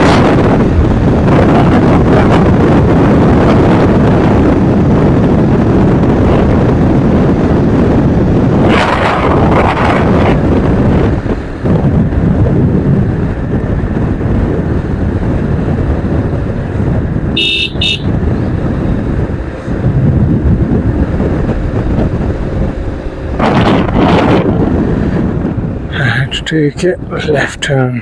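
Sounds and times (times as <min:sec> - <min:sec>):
motorcycle road and wind rumble: 0:00.0 - 0:28.0
vehicle horn toots: 0:17.4 - 0:18.1.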